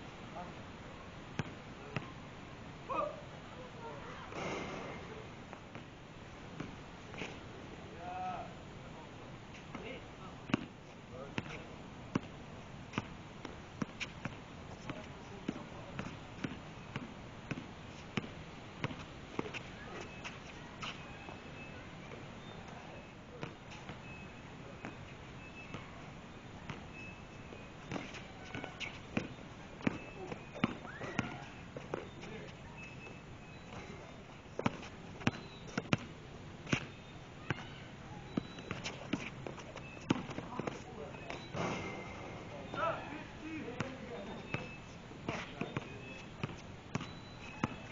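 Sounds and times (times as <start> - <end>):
basketball bouncing on hard court: 27.9 - 32.2, 33.1 - 36.1, 36.7 - 42.2, 43.8 - 47.9
basketball dribbling on hard court: 43.8 - 47.9.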